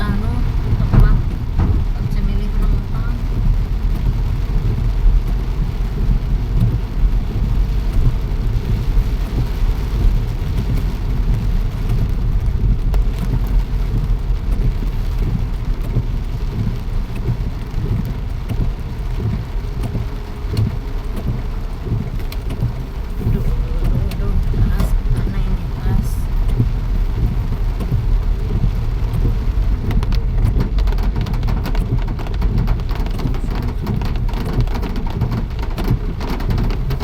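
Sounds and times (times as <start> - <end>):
continuous low rumble: 0.0 - 37.0
rain falling: 0.0 - 37.0.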